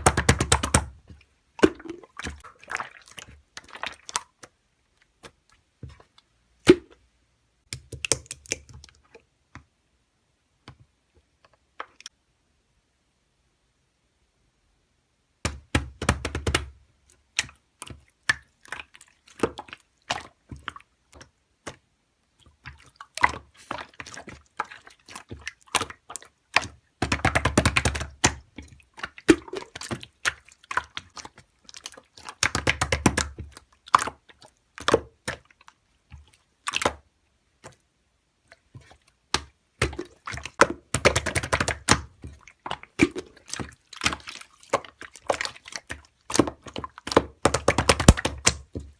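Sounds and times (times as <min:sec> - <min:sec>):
slime squishing: 0:00.0 - 0:09.7, 0:15.5 - 0:48.9
slime squelching: 0:00.0 - 0:09.8, 0:15.4 - 0:48.9
sticky clicks and wet pops: 0:07.6 - 0:09.7, 0:15.4 - 0:48.9.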